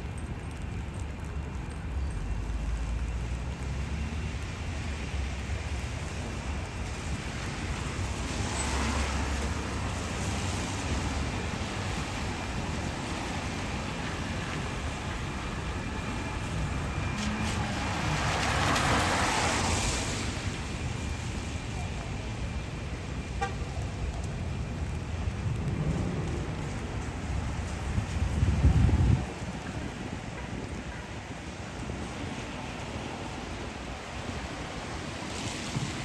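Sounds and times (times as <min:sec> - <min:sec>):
traffic engine rumble: 0:00.0 - 0:36.0
vehicle passing close by: 0:16.9 - 0:20.8.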